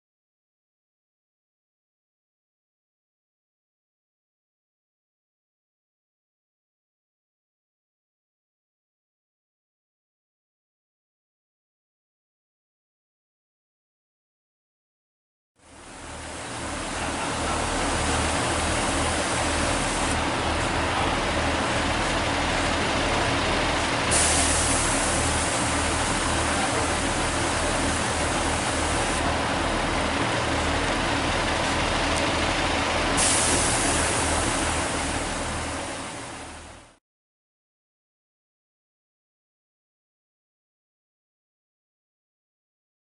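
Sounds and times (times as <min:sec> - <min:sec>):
diesel train engine: 0:15.6 - 0:37.0.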